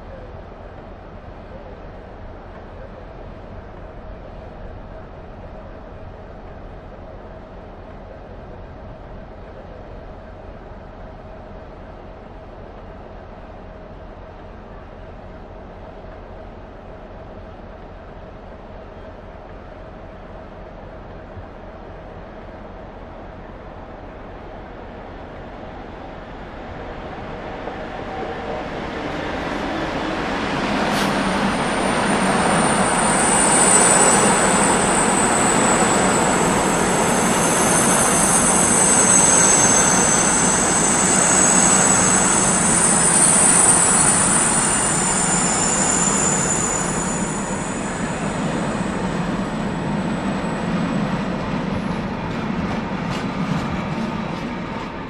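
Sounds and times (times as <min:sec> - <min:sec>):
high-pitched wheel squeals: 0:30.8 - 0:52.1.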